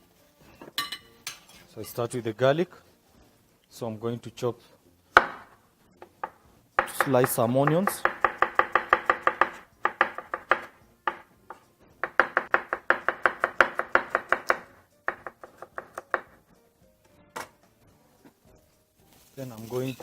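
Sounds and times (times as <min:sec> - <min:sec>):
knife chopping onions on board: 0:06.2 - 0:16.4.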